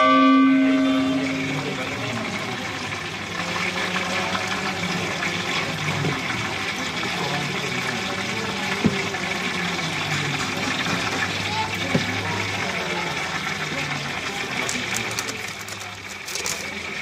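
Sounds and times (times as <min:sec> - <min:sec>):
low hum: 0:00.0 - 0:05.6.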